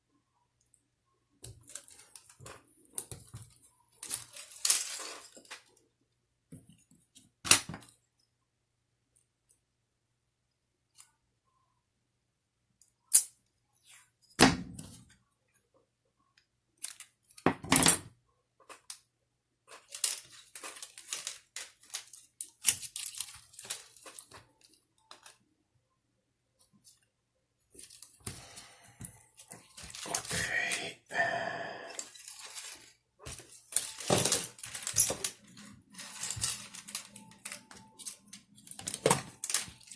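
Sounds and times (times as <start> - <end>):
tape rustling: 19.7 - 25.4, 27.7 - 30.5, 32.0 - 39.9.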